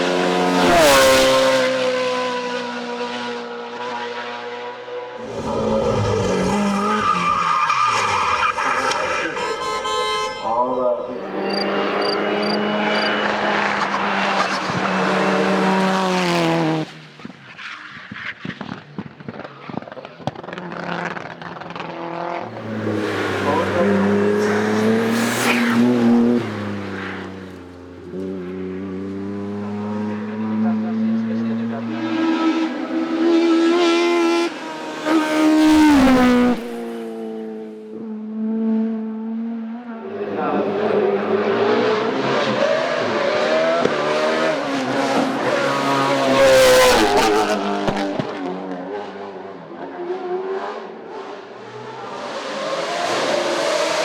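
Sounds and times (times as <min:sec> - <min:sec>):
race car engine at high revs: 0:00.0 - 0:10.5, 0:11.1 - 0:54.0
race car engine running hard: 0:11.2 - 0:16.8, 0:20.0 - 0:25.2.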